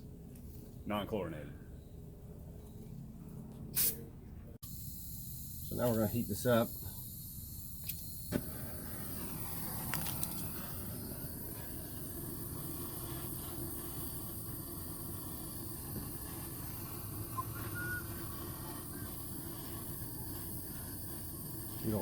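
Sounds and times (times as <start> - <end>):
gas torch hissing: 3.8 - 4.0, 4.6 - 22.0.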